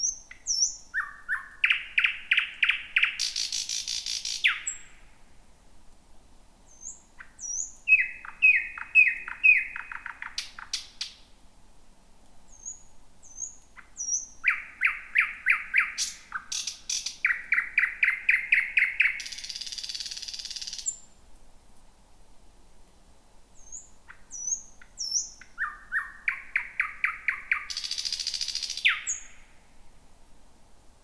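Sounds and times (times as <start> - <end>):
bird singing: 0.0 - 5.1, 6.7 - 11.2, 12.5 - 21.1, 23.6 - 29.6.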